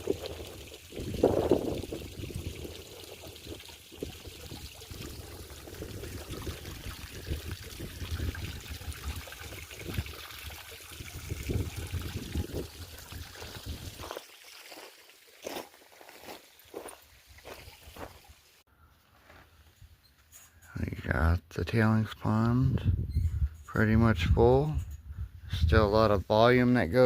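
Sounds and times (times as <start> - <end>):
water trickling and pouring: 0.0 - 18.6.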